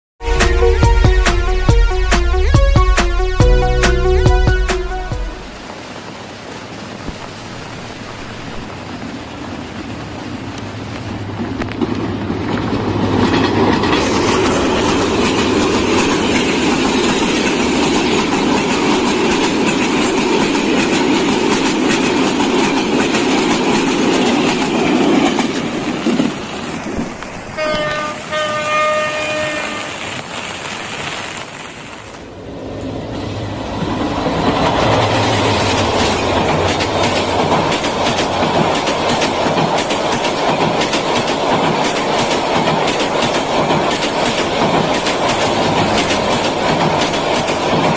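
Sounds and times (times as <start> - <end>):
train horn blasts: 0.2 - 5.5, 27.5 - 30.0
passenger train clattering past: 7.9 - 47.9
diesel locomotive engine rumbling: 8.7 - 30.2, 32.1 - 47.9.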